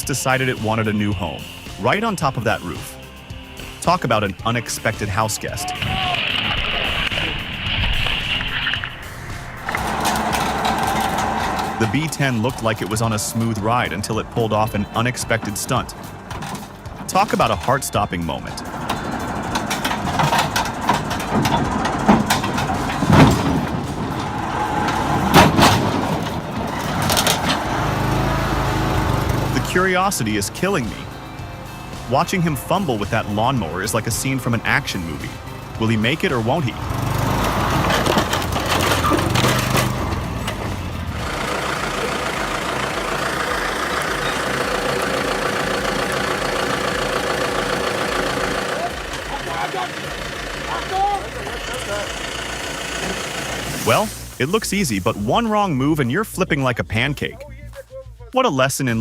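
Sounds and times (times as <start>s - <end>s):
engine idling: 0.0s - 56.1s
heavy vehicle running: 0.0s - 57.3s
loud thumps: 5.5s - 13.3s, 18.7s - 29.6s
clanks and knocks: 7.9s - 11.8s, 15.9s - 17.8s, 18.6s - 29.5s, 36.7s - 50.7s.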